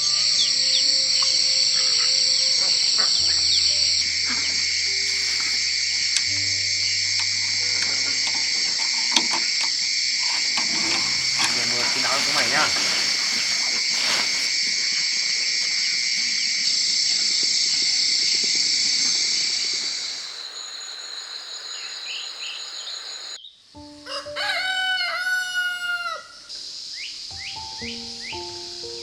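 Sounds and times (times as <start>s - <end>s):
rooster crowing: 0.0s - 16.5s, 24.0s - 26.5s
high-pitched insect drone: 0.0s - 23.4s.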